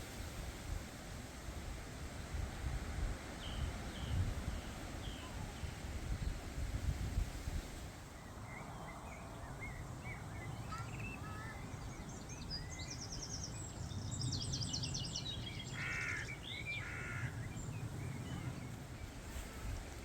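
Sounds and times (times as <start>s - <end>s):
birds singing and chirping: 8.5s - 19.2s
harsh bird calls: 8.8s - 13.5s, 14.8s - 19.2s.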